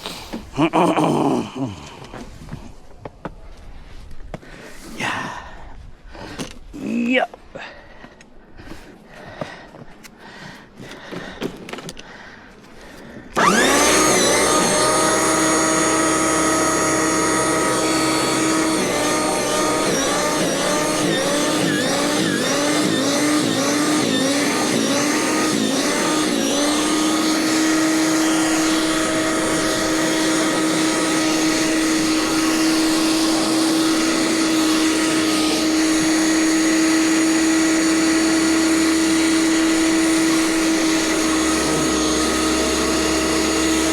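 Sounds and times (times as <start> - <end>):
snow shovel motor whining: 13.3 - 43.9.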